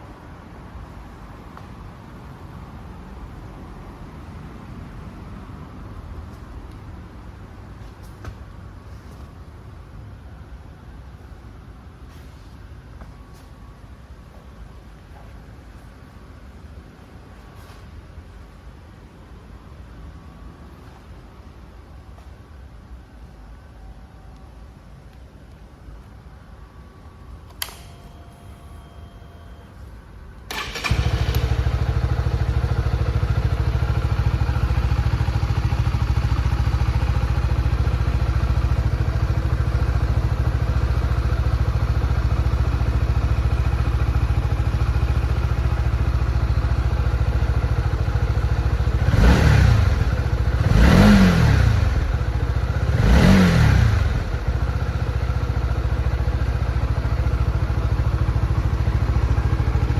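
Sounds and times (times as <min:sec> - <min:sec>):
motorcycle engine starting: 0:30.4 - 0:59.9
motorcycle engine idling: 0:30.6 - 0:59.9
motorcycle engine revving: 0:47.9 - 0:55.1.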